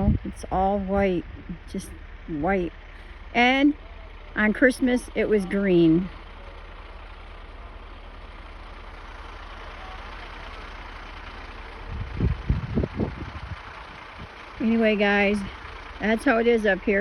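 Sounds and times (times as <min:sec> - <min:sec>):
wind buffeting microphone: 0:00.0 - 0:01.6, 0:11.8 - 0:15.4
low gusts hitting microphone: 0:00.0 - 0:02.7, 0:11.6 - 0:16.8.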